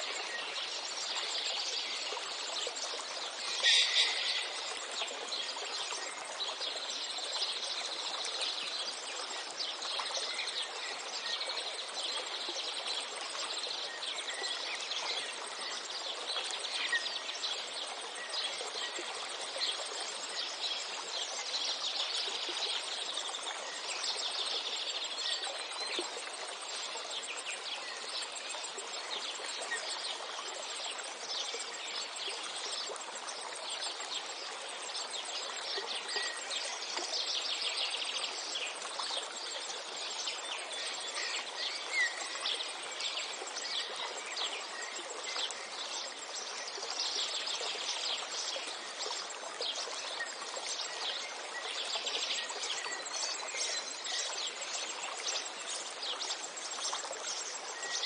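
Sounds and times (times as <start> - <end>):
steady background hiss: 0.0 - 58.0
small birds chirping: 3.4 - 6.8.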